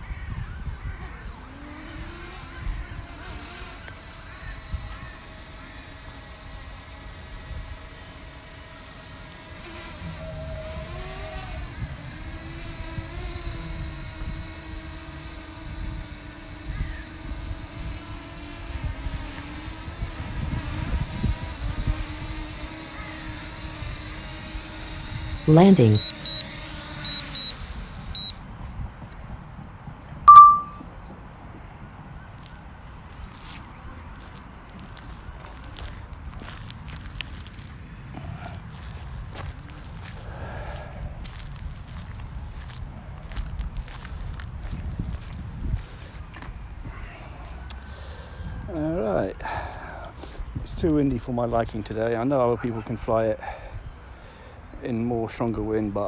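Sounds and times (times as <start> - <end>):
wind buffeting microphone: 0.0 - 9.0, 9.6 - 25.5, 33.7 - 47.0
short high beeps: 25.5 - 26.4, 28.2 - 28.4, 30.3 - 30.8
ringing beep: 30.3 - 30.8.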